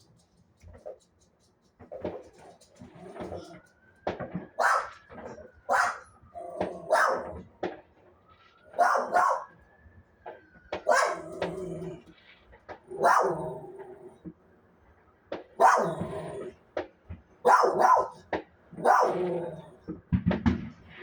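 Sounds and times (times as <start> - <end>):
dog barking: 2.0 - 3.6, 4.6 - 7.5, 8.7 - 9.6, 10.8 - 12.0, 12.9 - 14.2, 15.6 - 16.6, 17.4 - 19.9.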